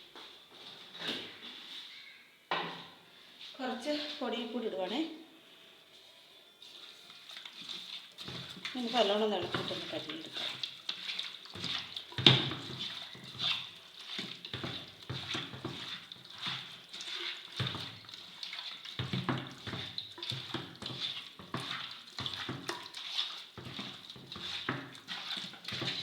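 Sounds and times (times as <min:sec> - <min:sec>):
wet squelching and sloshing: 0:06.9 - 0:26.0.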